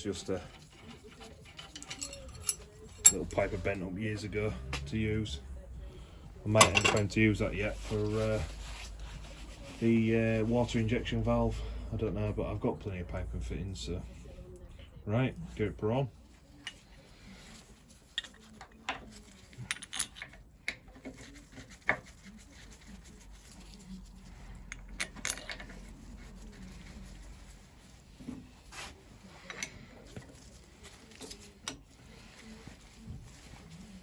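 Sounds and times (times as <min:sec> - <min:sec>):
metal pipes and tools clinking: 0:00.1 - 0:03.8, 0:06.5 - 0:08.2, 0:18.0 - 0:20.8, 0:24.6 - 0:26.1.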